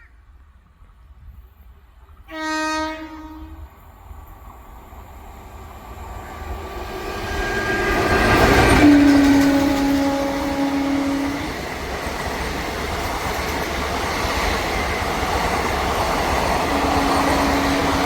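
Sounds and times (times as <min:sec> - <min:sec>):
train rumbling past: 0:00.3 - 0:18.0
train horn blast: 0:02.3 - 0:03.7, 0:07.5 - 0:11.6, 0:16.6 - 0:18.0.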